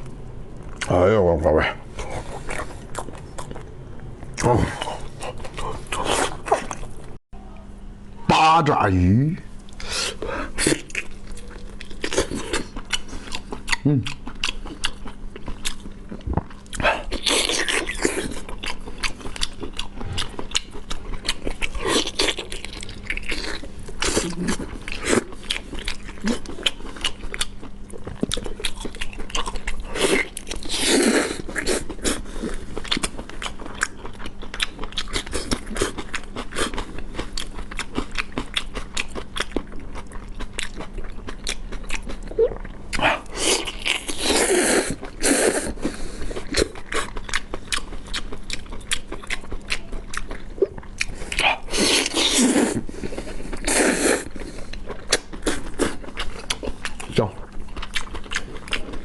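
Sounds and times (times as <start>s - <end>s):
person chewing wet clicks: 9.6s - 45.7s, 46.3s - 52.8s, 54.7s - 59.0s.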